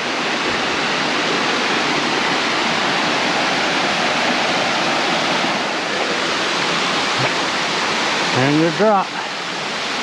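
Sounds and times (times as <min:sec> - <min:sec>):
waterfall rushing over rock: 0:00.0 - 0:10.0.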